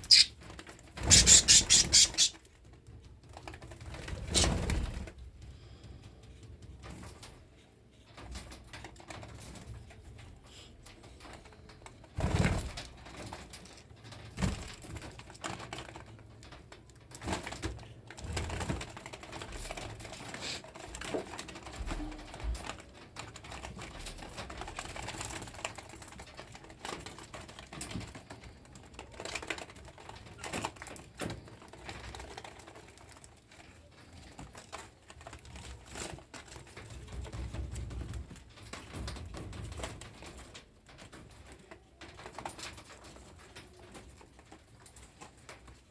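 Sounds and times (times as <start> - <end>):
cockatiel chirping softly: 0.0 - 0.4, 1.1 - 2.4.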